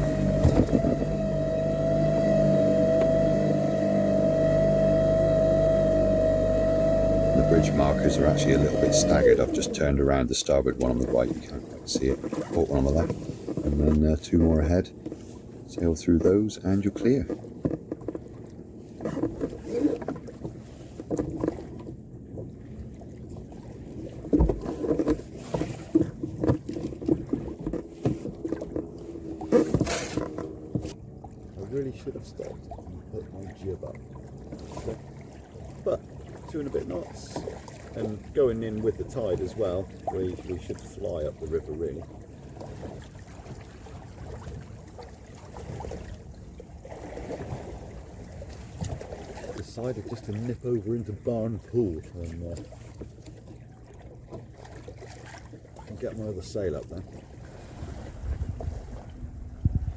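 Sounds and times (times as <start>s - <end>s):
water slapping against hull: 0.0s - 59.9s
wind on microphone: 57.5s - 59.9s.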